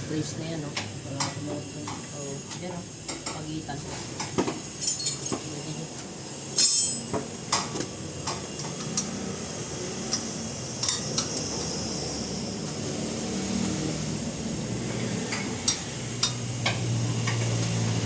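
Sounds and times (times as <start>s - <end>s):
metal tools clinking: 4.8s - 5.5s, 6.6s - 7.2s.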